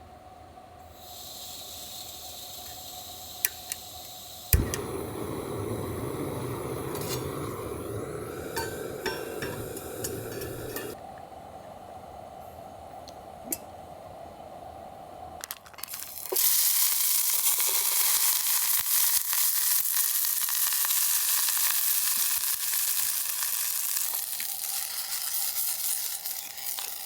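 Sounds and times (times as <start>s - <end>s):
steak sizzling on a griddle: 4.3s - 10.9s, 16.2s - 27.0s.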